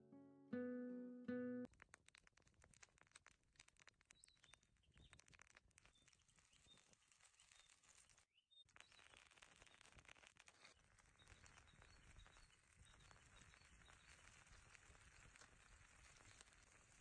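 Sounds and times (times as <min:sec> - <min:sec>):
guitar music: 0:00.0 - 0:01.7
faint crackling clicks: 0:01.6 - 0:17.0.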